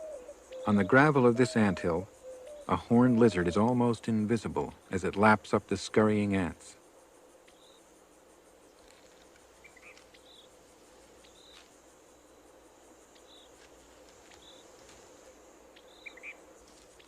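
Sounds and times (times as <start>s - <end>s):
high-pitched insect trill: 0.0s - 17.0s
short high insect chirps: 6.8s - 17.0s.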